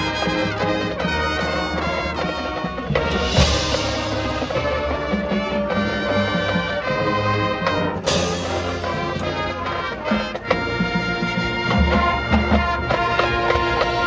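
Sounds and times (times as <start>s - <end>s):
brass chords: 0.0s - 14.0s
low drums: 0.0s - 14.0s
cymbal crash: 3.1s - 5.0s.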